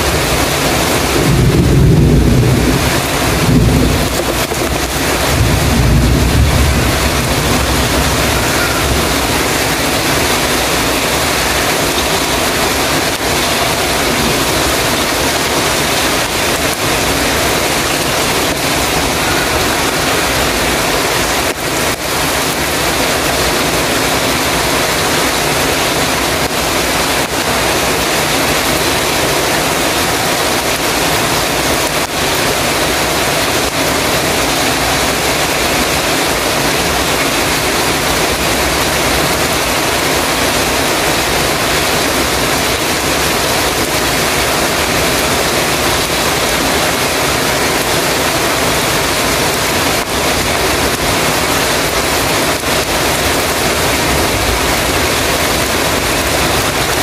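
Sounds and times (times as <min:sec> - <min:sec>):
heavy rain on a metal roof: 0:00.0 - 0:57.0.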